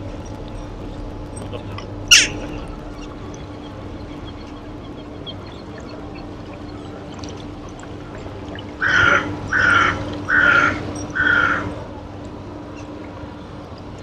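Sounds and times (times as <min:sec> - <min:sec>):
sea water washing: 0:00.0 - 0:14.0
seagull harsh calls: 0:08.5 - 0:11.8.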